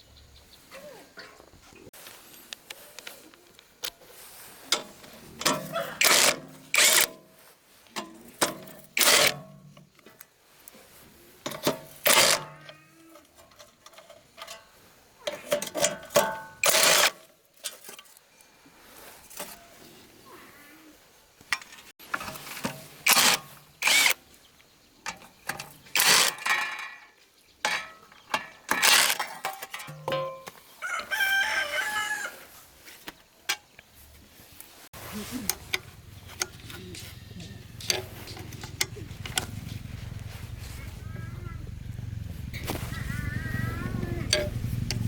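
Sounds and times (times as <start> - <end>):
hand tools scraping metal: 4.1 - 7.4, 8.0 - 9.7, 11.5 - 18.2, 21.6 - 24.2, 25.5 - 27.1, 27.7 - 30.8, 35.0 - 39.4.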